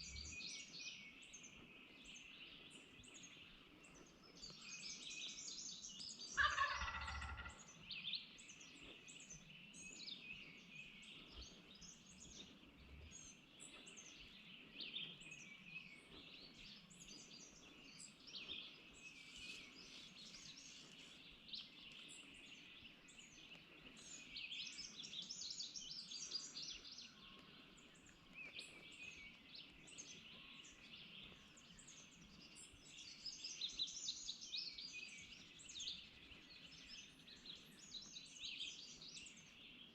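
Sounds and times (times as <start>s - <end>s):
songbirds chirping and singing: 0.0s - 39.9s
turkey gobbling: 6.4s - 7.6s.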